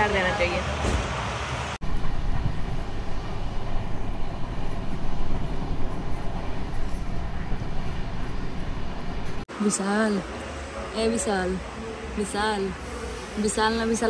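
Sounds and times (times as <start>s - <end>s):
train rumbling on rails: 0.0s - 9.4s.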